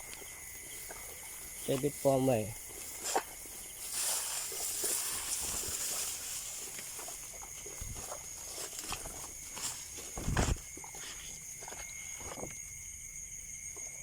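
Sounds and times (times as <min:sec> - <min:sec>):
high-pitched hiss: 0:00.0 - 0:13.5
soft rustles: 0:02.8 - 0:12.6
footsteps thumping: 0:04.9 - 0:12.6.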